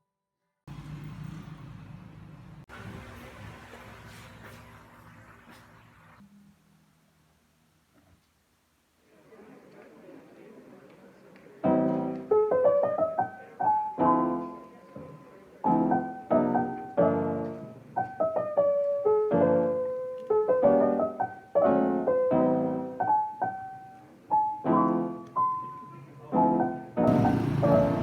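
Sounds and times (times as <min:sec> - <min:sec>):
solo piano music: 0:11.6 - 0:28.0.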